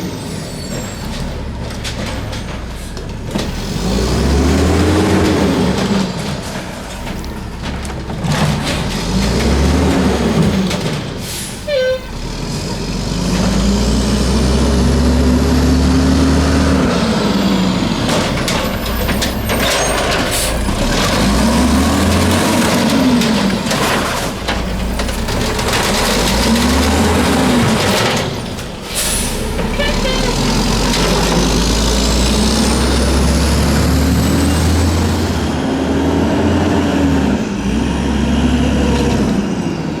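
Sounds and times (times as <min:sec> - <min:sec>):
diesel engine revving: 0:03.2 - 0:40.0
air brakes hissing: 0:11.2 - 0:12.2, 0:19.9 - 0:20.8, 0:28.8 - 0:30.5.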